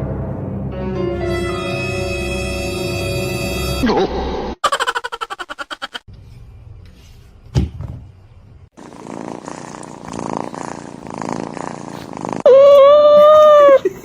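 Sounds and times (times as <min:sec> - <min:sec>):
cat purring: 0:08.7 - 0:12.5
cat high-pitched cry: 0:12.4 - 0:13.9.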